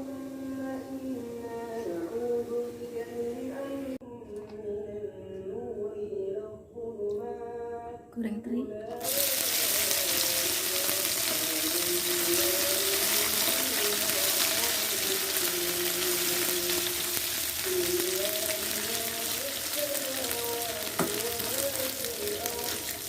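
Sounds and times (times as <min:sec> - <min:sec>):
click: 0:04.3 - 0:04.6, 0:05.3 - 0:05.5
fish sizzling in hot oil: 0:09.0 - 0:23.0.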